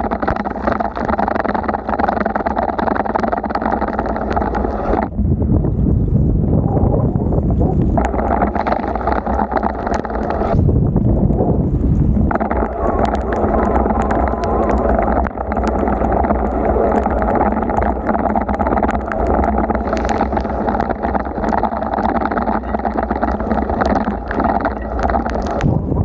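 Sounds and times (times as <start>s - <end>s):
sharp ticks of rain: 0.0s - 5.8s, 7.6s - 25.8s
wind buffeting microphone: 0.0s - 26.0s
wet road and water noise: 7.3s - 25.8s.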